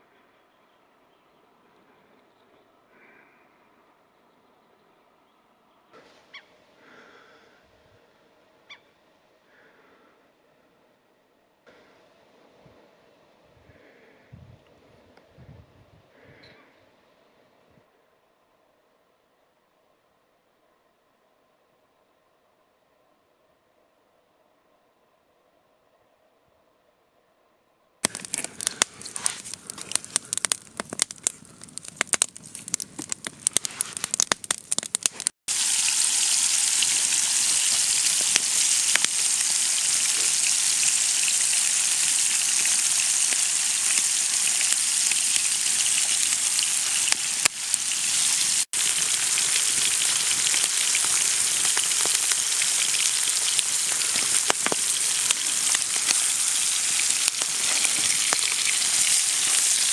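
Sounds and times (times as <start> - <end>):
food frying in a pan: 28.0 - 59.9.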